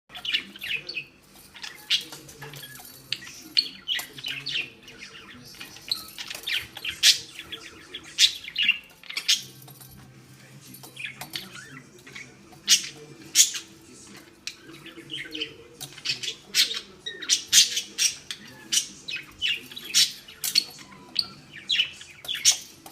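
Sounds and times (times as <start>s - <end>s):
budgerigar chirping: 3.6s - 9.6s.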